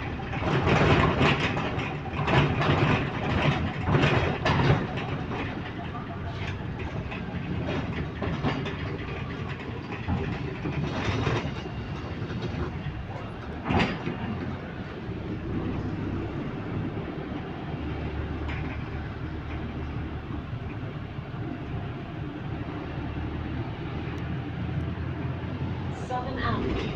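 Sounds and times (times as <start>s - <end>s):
small knocks and rattles: 0.0s - 15.8s
bus engine and running noise: 0.0s - 26.9s.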